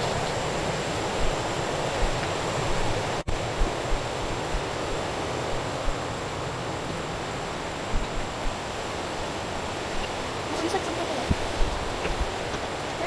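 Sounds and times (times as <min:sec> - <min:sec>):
water rushing in a stream: 0:00.0 - 0:13.0
soft low thumps: 0:01.0 - 0:06.2, 0:07.8 - 0:10.2, 0:11.2 - 0:12.7.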